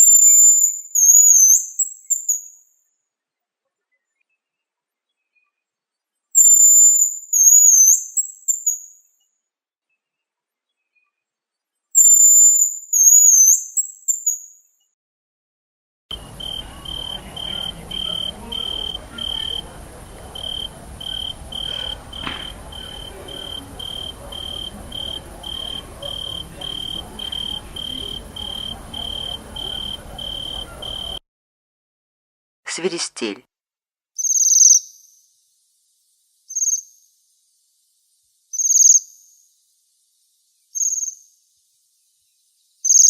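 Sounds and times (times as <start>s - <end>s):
bird chirps on one pitch: 0.0s - 2.5s, 6.4s - 8.9s, 12.0s - 14.5s, 34.2s - 35.1s
bird whistled call: 0.0s - 2.5s, 6.4s - 8.8s, 12.0s - 14.4s, 20.4s - 31.2s
steady high hiss: 16.1s - 31.2s.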